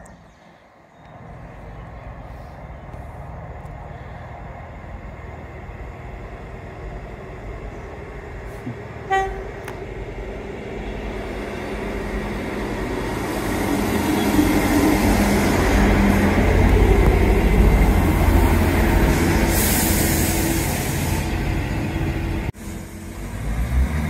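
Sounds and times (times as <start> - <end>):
train engine and wheels rumbling: 0.0 - 24.0
train horn toot: 9.1 - 9.7.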